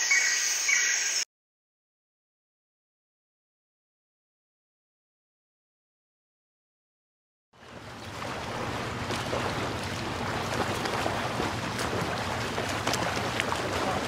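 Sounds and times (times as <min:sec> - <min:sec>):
low hum: 0:07.6 - 0:14.0
waves and water washing: 0:07.6 - 0:14.0.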